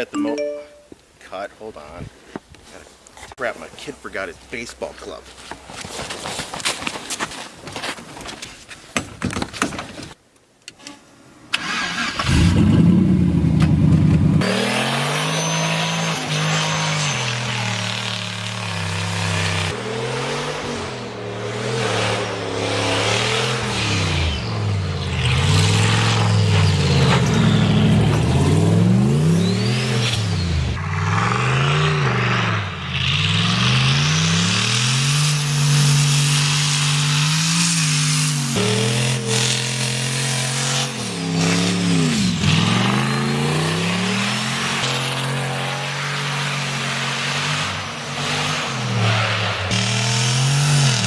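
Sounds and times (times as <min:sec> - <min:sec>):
car engine revving: 0:11.6 - 0:51.0.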